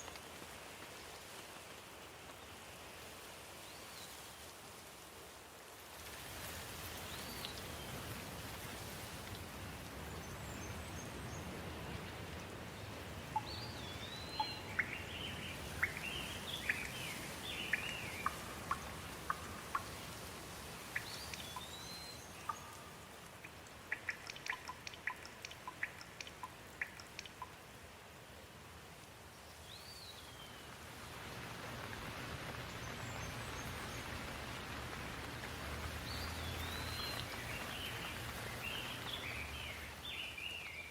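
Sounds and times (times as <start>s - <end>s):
steady rain falling: 0.0s - 40.9s
birds chirping: 13.3s - 20.1s, 20.8s - 27.6s, 35.9s - 40.9s.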